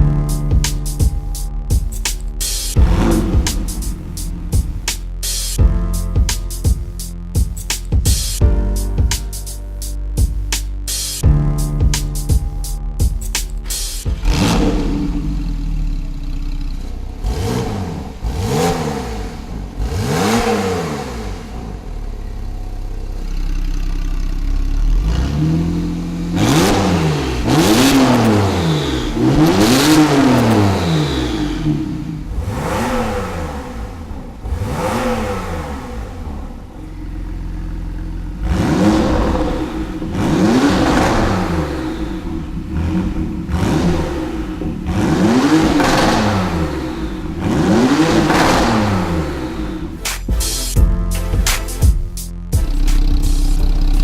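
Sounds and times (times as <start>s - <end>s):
car engine revving from idle: 2.7s - 4.9s, 14.1s - 50.0s.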